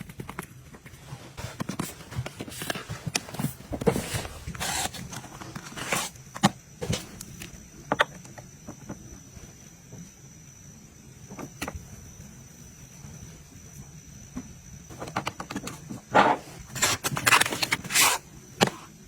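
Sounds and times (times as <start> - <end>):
items clicking and knocking: 0.0 - 9.0, 14.9 - 18.9
packaging rustling: 1.4 - 7.5, 16.6 - 18.8.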